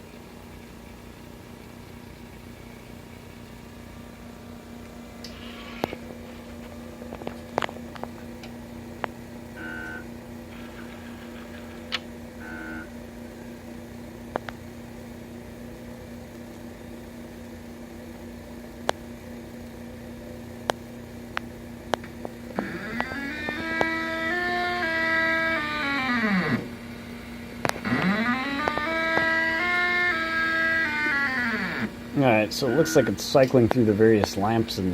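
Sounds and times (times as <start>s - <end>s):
machine humming: 0.0s - 34.9s
stepper motors whirring: 22.6s - 26.8s, 27.7s - 32.0s.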